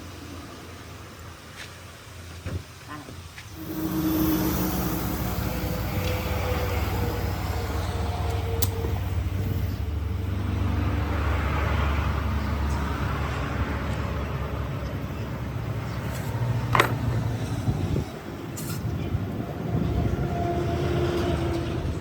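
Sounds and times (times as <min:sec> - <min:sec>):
engine humming: 0:03.2 - 0:22.0
hiss: 0:03.4 - 0:10.0.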